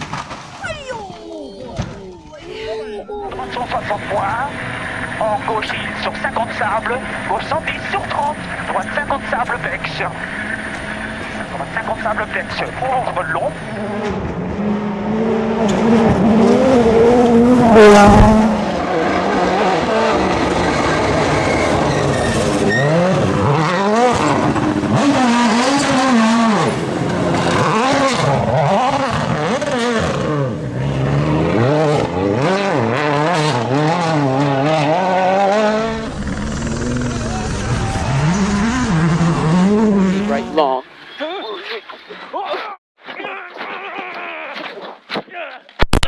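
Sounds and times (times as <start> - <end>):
rally car engine revving: 3.3 - 40.8.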